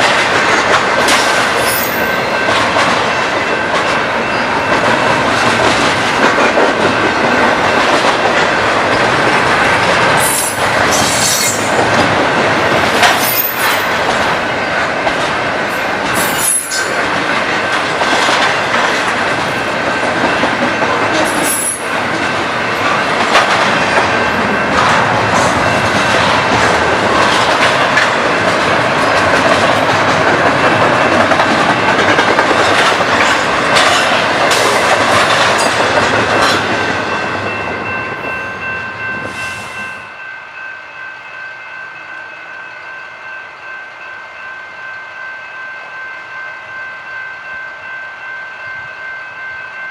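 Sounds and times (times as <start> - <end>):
clickety-clack over rail joints: 0.0 - 38.3
wheels rumbling on rails: 0.0 - 41.6.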